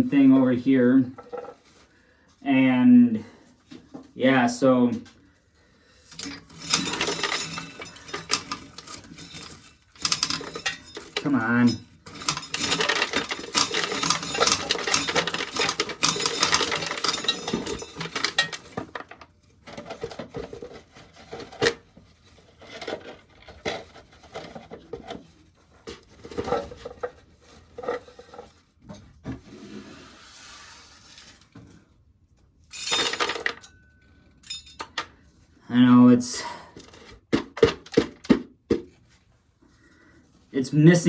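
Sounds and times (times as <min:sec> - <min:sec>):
kernels rattling into metal can: 0:06.1 - 0:25.3, 0:32.7 - 0:33.8, 0:34.4 - 0:35.0, 0:36.8 - 0:38.4.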